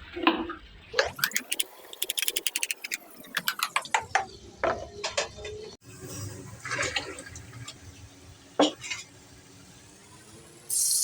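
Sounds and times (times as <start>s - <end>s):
kitchen utensils clicking: 1.1s - 3.9s.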